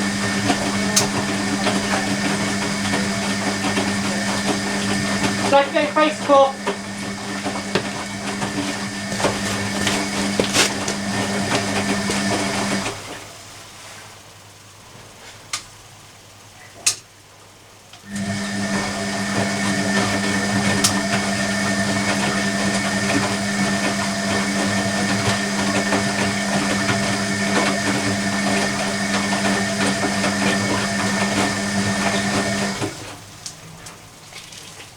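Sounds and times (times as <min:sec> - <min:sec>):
washing machine drum turning: 0:00.0 - 0:13.2, 0:18.0 - 0:34.9
washing machine clicks: 0:00.2 - 0:13.0, 0:20.6 - 0:21.8.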